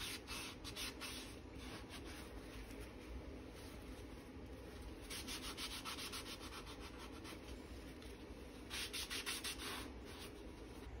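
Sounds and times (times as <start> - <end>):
hand sanding rubbing strokes: 0.0 - 2.7, 5.0 - 7.9, 8.6 - 10.8.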